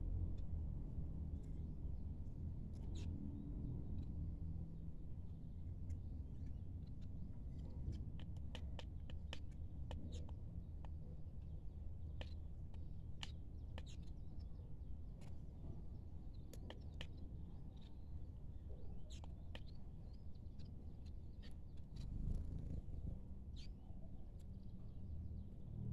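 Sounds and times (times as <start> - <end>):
small birds chirping: 5.9 - 15.3, 15.9 - 25.5
low steady rumble: 21.8 - 23.7.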